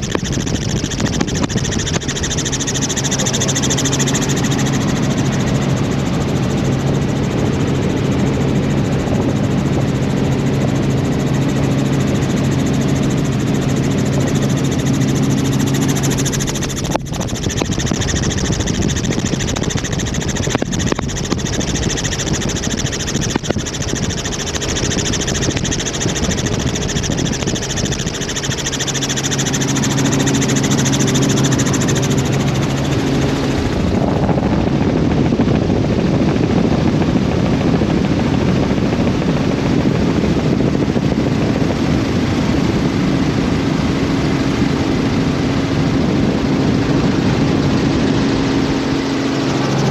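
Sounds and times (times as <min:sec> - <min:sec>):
sharp click: 0:00.0 - 0:05.1, 0:15.1 - 0:33.0
low hum: 0:00.0 - 0:37.0, 0:44.1 - 0:49.9
helicopter engine and rotor: 0:00.0 - 0:49.9.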